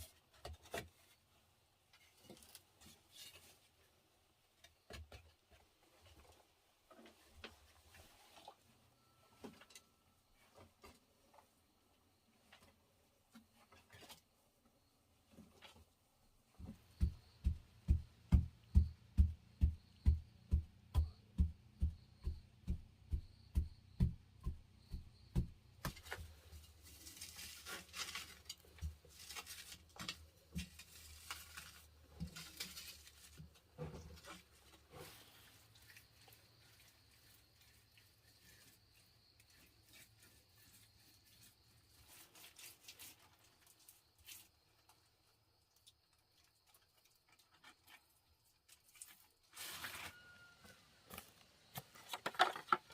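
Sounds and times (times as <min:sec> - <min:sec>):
scraping and rustling: 0:00.0 - 0:04.0, 0:25.8 - 0:45.0, 0:46.6 - 0:52.9.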